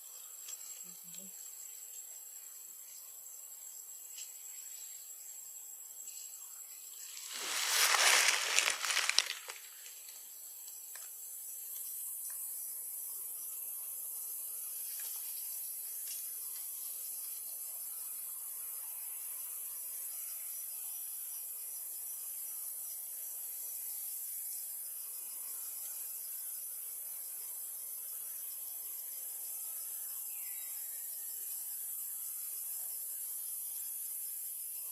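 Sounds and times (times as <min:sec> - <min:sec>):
high-pitched hiss: 0:06.0 - 0:10.0.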